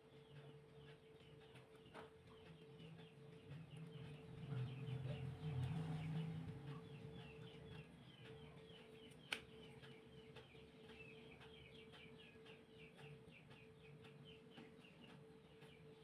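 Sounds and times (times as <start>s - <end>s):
faint bird chirping: 0.0s - 16.0s.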